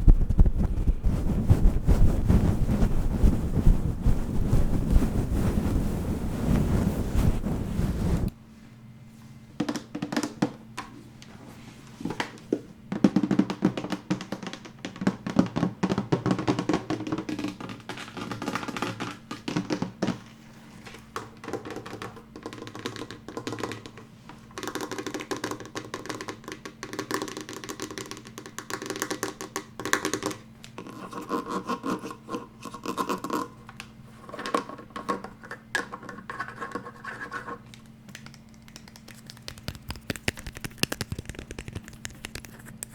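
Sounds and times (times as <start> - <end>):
scraping on hard objects: 38.6 - 42.9.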